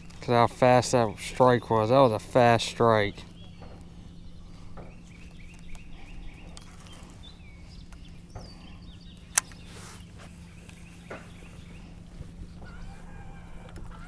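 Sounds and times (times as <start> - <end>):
steady low hum: 0.0 - 14.0
faint bird chirps: 3.2 - 14.0
sharp click: 9.3 - 9.6.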